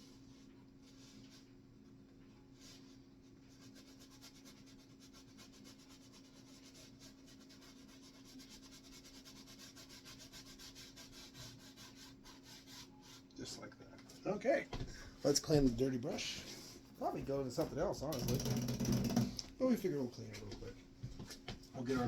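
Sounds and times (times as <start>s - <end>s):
paintbrush scrubbing on canvas: 0.0s - 1.6s, 2.4s - 13.6s.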